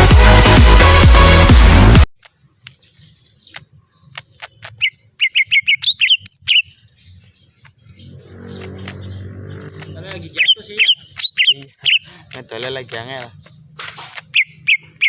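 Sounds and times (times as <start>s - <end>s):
electronic dance music: 0.0s - 2.1s
bird chips and whistles: 4.2s - 6.7s, 8.0s - 15.0s.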